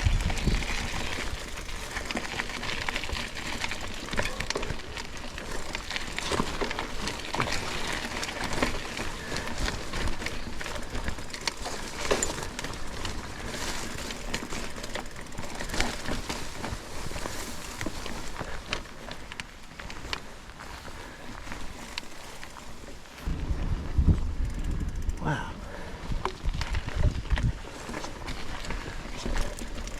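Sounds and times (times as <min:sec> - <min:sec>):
footsteps crunching on rough ground: 0:00.0 - 0:24.6, 0:26.0 - 0:29.9.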